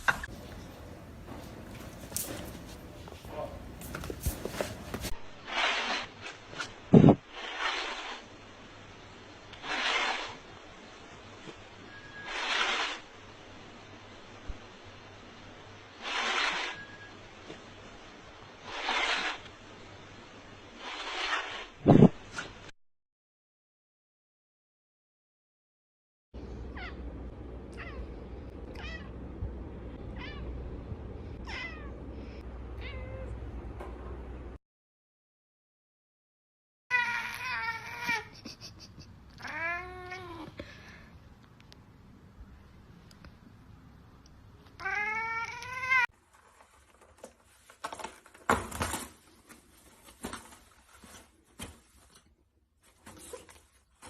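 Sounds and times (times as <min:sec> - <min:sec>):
rustling: 0:00.3 - 0:08.5, 0:46.1 - 0:54.0
cat meowing: 0:31.4 - 0:32.0, 0:32.8 - 0:33.3, 0:36.9 - 0:38.3, 0:44.8 - 0:46.1.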